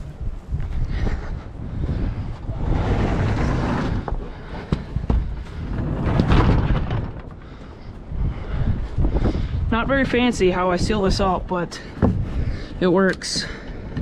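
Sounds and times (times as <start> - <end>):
wind buffeting microphone: 0.0 - 14.0
rustling: 2.6 - 8.1.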